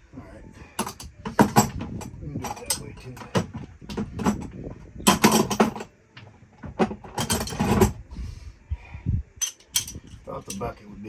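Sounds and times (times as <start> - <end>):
metal tools clattering: 0.8 - 5.9, 6.7 - 8.0, 9.4 - 10.8.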